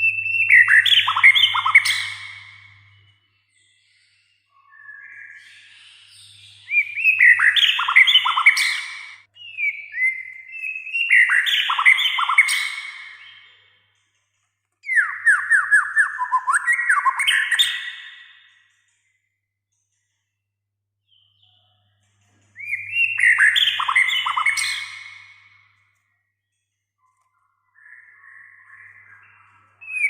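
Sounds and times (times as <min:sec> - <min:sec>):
bird singing varied whistles: 0:00.0 - 0:03.2, 0:04.6 - 0:13.5, 0:14.8 - 0:18.5, 0:22.6 - 0:25.8, 0:27.8 - 0:30.0.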